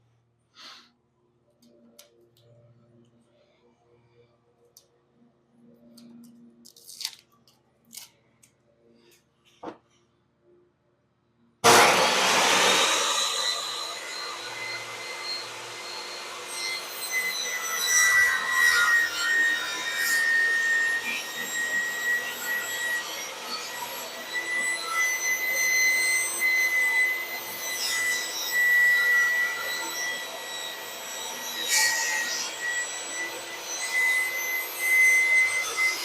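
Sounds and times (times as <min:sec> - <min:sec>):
table saw whining: 0:11.6 - 0:36.0.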